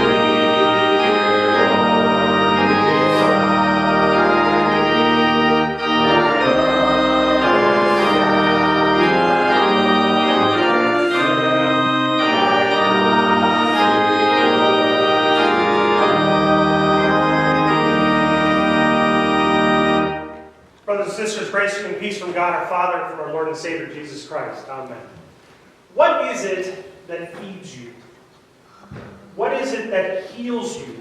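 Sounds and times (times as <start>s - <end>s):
church organ playing a hymn: 0.0s - 24.0s.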